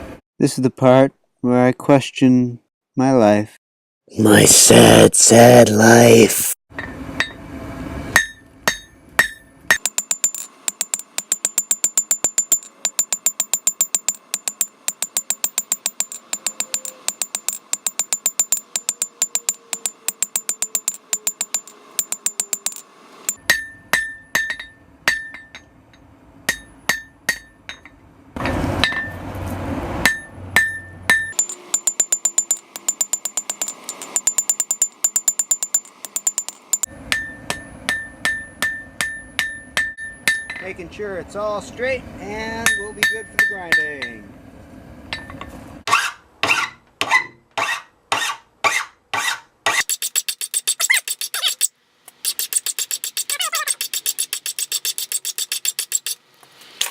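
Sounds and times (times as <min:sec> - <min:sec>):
hammer ringing on anvil: 0:08.2 - 0:25.7, 0:26.5 - 0:28.0, 0:30.1 - 0:40.6, 0:42.6 - 0:44.2.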